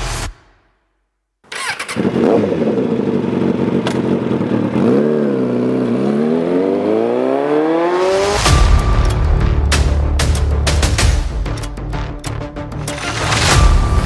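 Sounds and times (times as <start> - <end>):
motorcycle engine accelerating: 1.4 - 8.5.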